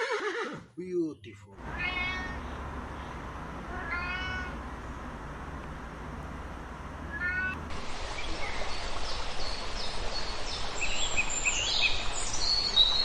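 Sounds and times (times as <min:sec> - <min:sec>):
steady low hum: 0:01.5 - 0:10.8
cat meowing: 0:01.6 - 0:02.6, 0:03.7 - 0:04.6, 0:07.1 - 0:07.6.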